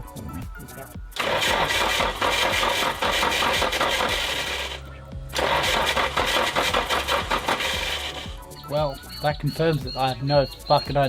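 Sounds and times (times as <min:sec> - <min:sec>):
engine cranking on starter: 0:01.2 - 0:08.5.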